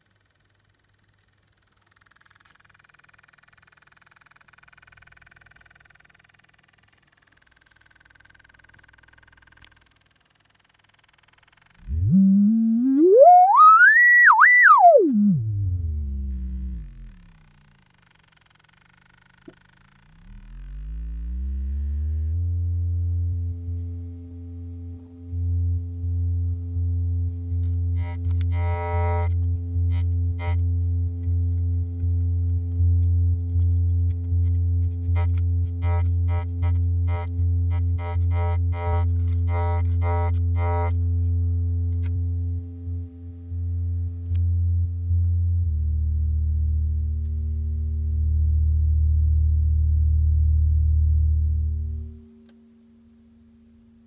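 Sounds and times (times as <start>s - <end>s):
machine motor drone: 11.1s - 52.3s
faint squeaking whine: 11.8s - 17.3s.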